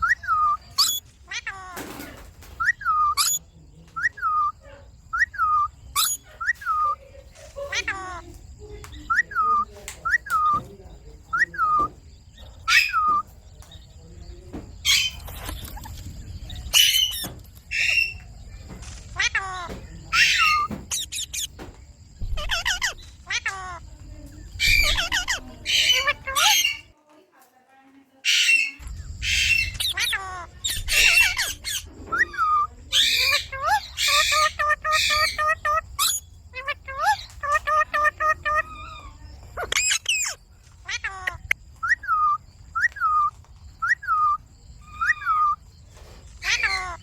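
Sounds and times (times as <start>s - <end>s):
parakeet chattering calls: 0.0s - 2.0s, 2.6s - 3.4s, 4.0s - 8.3s, 11.3s - 13.9s, 14.7s - 26.9s, 28.2s - 45.6s, 46.2s - 47.0s
parrot squawking: 0.0s - 2.0s, 2.6s - 3.4s, 5.1s - 7.0s, 7.6s - 8.3s, 12.6s - 13.2s, 16.6s - 21.6s, 22.2s - 23.8s, 24.5s - 26.9s, 28.3s - 45.6s, 46.3s - 47.0s.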